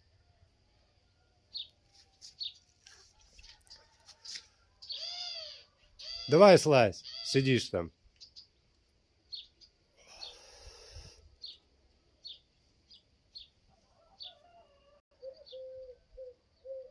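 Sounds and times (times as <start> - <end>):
small birds chirping: 1.5 - 14.5, 15.2 - 16.9
rustling noise: 1.8 - 4.6
low wavering bird call: 15.2 - 16.9.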